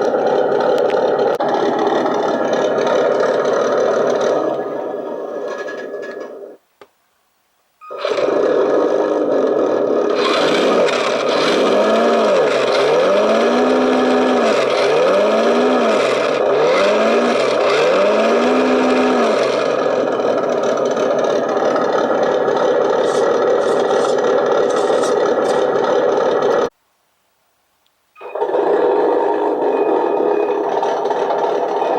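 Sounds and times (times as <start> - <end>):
steady rattle: 0.0 - 6.5, 18.5 - 26.7, 28.2 - 31.9
simulated truck engine revving: 0.0 - 6.6, 7.8 - 26.7, 28.2 - 31.9.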